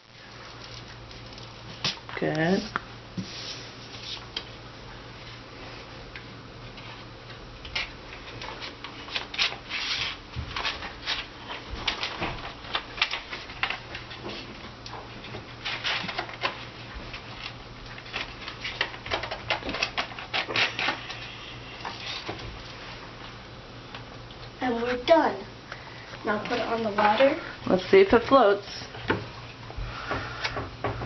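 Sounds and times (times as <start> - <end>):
paper rustling: 7.8 - 14.6, 15.6 - 22.8.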